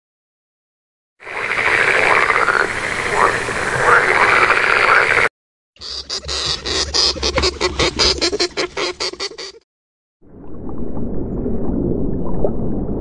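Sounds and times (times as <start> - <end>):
toad calling: 5.8 - 9.6.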